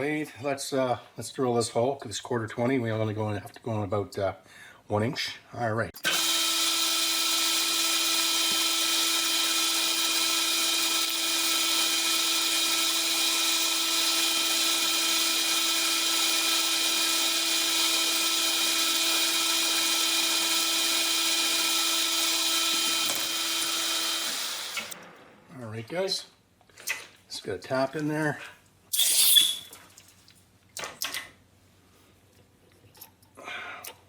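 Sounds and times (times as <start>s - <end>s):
metal lathe drilling whine: 6.0s - 25.0s.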